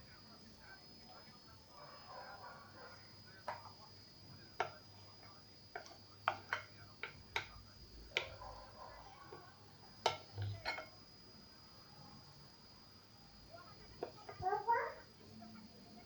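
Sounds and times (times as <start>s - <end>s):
spoon clinking against bowl: 5.7s - 8.4s, 10.0s - 11.0s.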